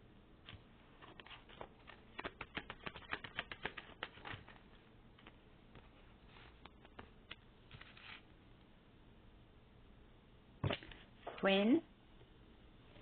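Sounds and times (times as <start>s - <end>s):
cards being shuffled by hand: 0.5s - 8.2s.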